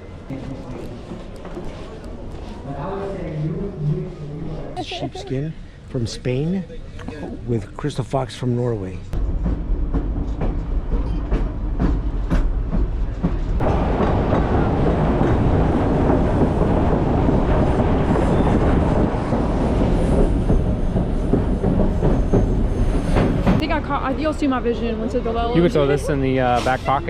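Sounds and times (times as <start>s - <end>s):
train rumble and rattle: 7.4s - 27.0s
train wheels clicking on track: 9.3s - 23.6s.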